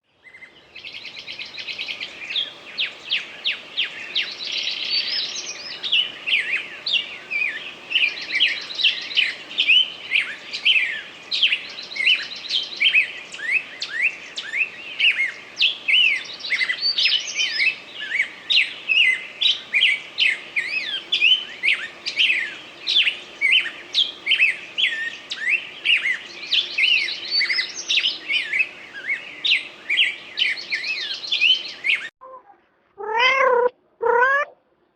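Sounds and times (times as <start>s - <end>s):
flock of birds chirping: 0.1s - 32.2s, 33.0s - 34.5s
rapid buzzy bird trills: 33.0s - 34.6s.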